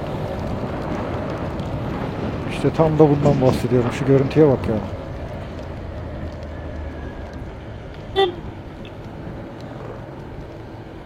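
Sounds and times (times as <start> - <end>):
road and wind noise: 0.0 - 11.0
horn toot: 8.2 - 8.5.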